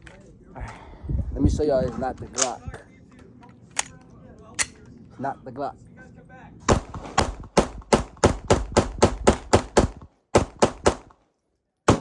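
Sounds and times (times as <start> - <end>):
pistol shots rapid fire: 6.7 - 11.1.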